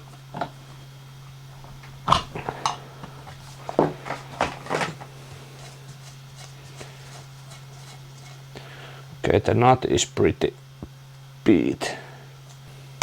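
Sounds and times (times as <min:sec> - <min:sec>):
steady low hum: 0:00.0 - 0:13.0
hand tools clanking on metal: 0:01.6 - 0:06.9.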